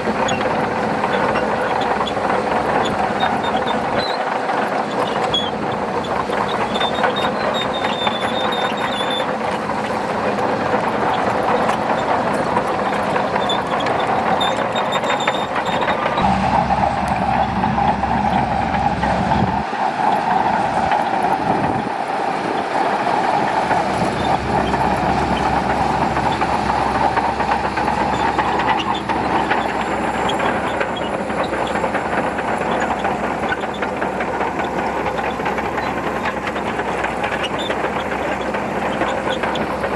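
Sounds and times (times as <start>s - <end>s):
bulldozer diesel engine under load: 0.0s - 39.9s
steel tracks clattering: 0.0s - 39.9s
deeper engine note: 16.1s - 19.8s, 23.5s - 32.4s.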